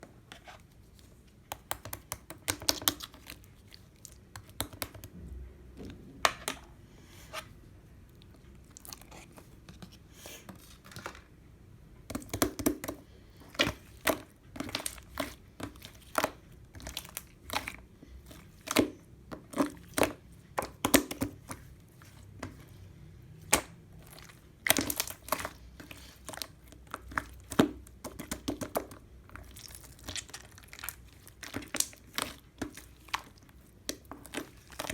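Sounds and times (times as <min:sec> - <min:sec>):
slime squished by hand: 0:23.4 - 0:34.9.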